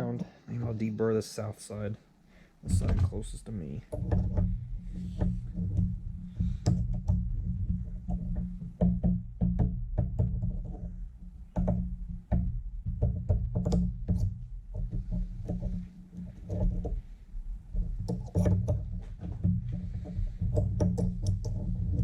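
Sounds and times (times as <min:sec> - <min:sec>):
sharp knocks: 0:02.7 - 0:10.9.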